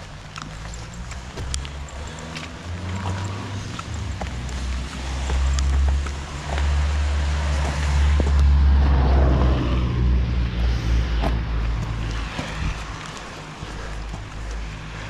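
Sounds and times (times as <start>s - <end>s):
raindrops ticking close by: 0.0s - 8.6s
wind buffeting microphone: 7.0s - 14.4s.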